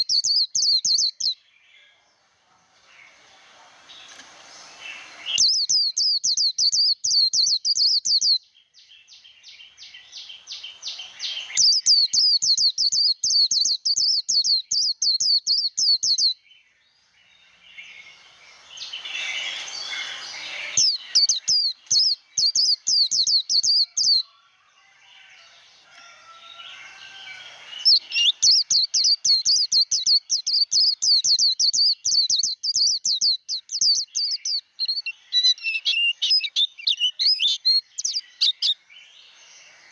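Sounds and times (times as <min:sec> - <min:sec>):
soft bird twittering: 0:00.0 - 0:24.5, 0:25.1 - 0:39.9.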